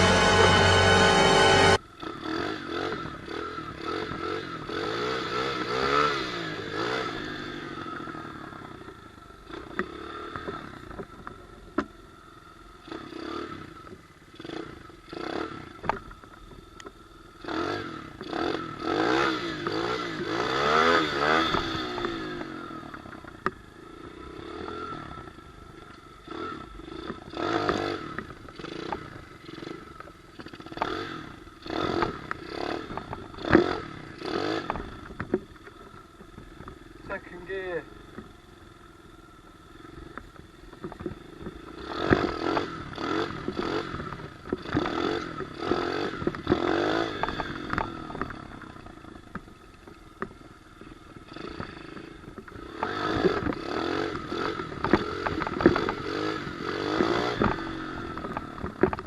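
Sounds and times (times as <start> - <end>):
pit bike engine revving: 0.0 - 8.6, 12.8 - 16.0, 17.4 - 35.9, 40.8 - 49.2, 51.1 - 59.0
bike rattling and knocking: 51.2 - 59.0.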